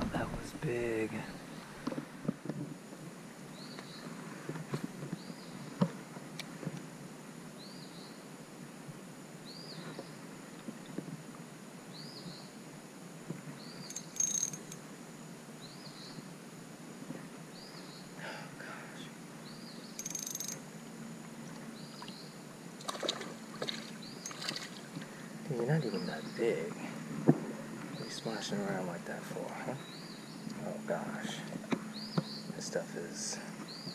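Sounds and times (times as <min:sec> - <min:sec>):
outdoor background noise: 0:00.0 - 0:33.9
water splashes: 0:22.8 - 0:25.0.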